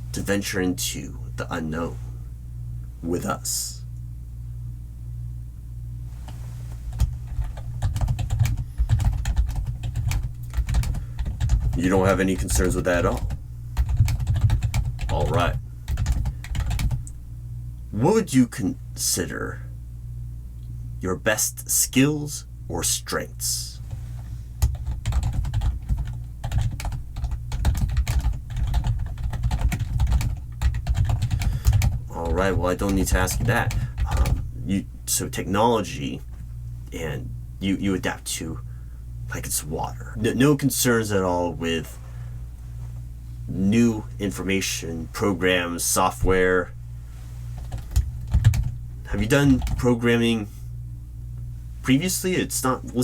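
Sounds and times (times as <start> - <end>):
steady low hum: 0.0 - 53.0
computer keyboard typing: 6.9 - 17.0, 24.6 - 34.4, 47.6 - 48.7, 49.4 - 49.8.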